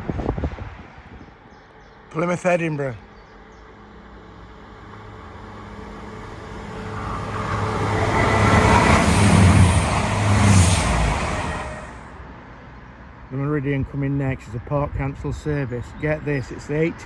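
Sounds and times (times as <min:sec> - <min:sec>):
diesel train passing: 0:00.0 - 0:13.2.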